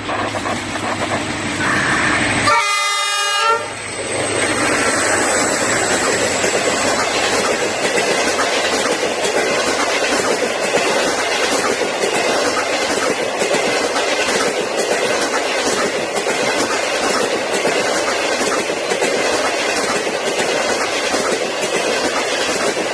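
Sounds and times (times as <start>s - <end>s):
train wheels clacking on rails: 0.0s - 22.9s
train horn blast: 1.6s - 3.8s.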